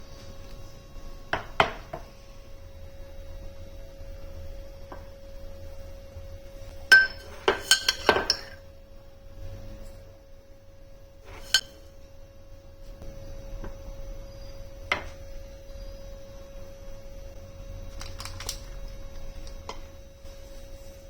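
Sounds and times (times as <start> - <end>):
faint steady hum: 0.0 - 21.0
dishes and glassware clinking: 6.9 - 8.6, 11.3 - 11.8.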